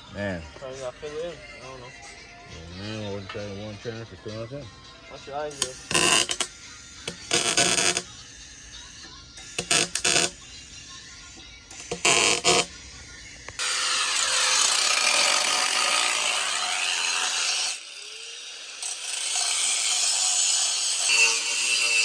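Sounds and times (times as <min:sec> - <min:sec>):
power tool cutting pipe: 0:05.5 - 0:06.5, 0:07.1 - 0:08.1, 0:09.4 - 0:10.4, 0:11.7 - 0:12.8, 0:13.6 - 0:22.0.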